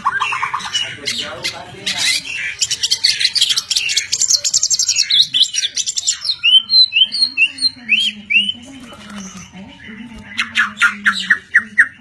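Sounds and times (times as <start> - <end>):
bird chattering notes: 0.0 - 12.0.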